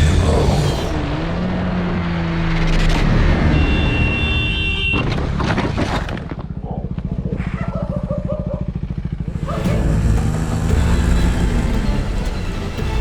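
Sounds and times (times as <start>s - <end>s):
motorcycle engine idling: 6.4s - 13.0s.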